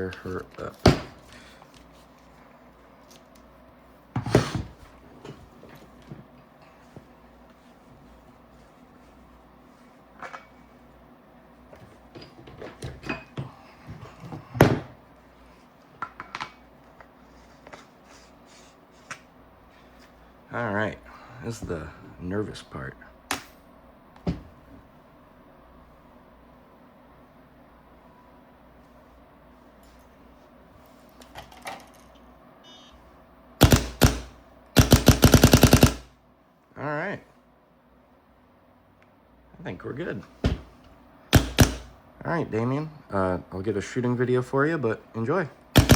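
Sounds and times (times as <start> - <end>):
short beep: 32.6 - 33.0.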